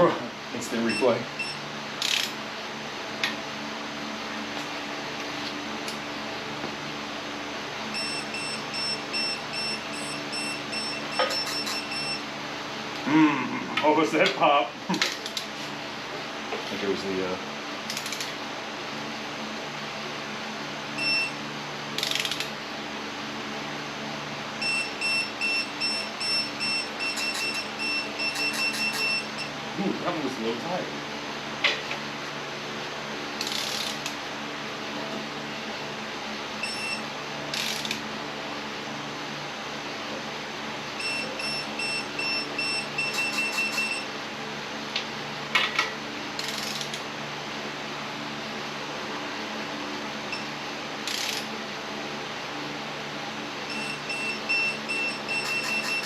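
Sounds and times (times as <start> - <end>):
torque wrench beeping: 0.9 - 2.3, 7.9 - 12.2, 21.0 - 21.4, 22.0 - 22.5, 24.6 - 29.6, 33.4 - 34.1, 36.6 - 38.0, 41.0 - 44.1, 51.1 - 51.5, 53.7 - 56.0
ratchet clicks: 2.0 - 2.4, 17.9 - 18.3, 22.0 - 22.5, 33.4 - 34.2, 37.5 - 38.0, 46.4 - 47.0, 51.0 - 51.5
metallic tool clicks: 22.0 - 22.5.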